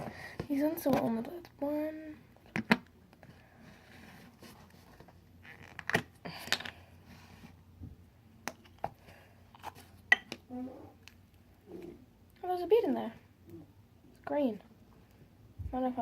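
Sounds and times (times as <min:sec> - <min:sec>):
faint scraping and rustling: 0:03.2 - 0:05.9.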